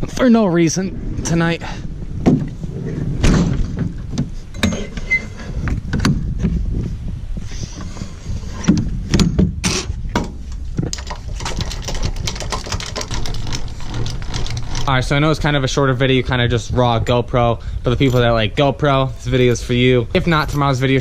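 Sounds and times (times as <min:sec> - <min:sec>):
steady low rumble: 0:00.0 - 0:21.0
trailer hitch clanks: 0:03.2 - 0:06.5, 0:08.5 - 0:15.6
tie-down strap clicks and rattles: 0:10.5 - 0:15.0.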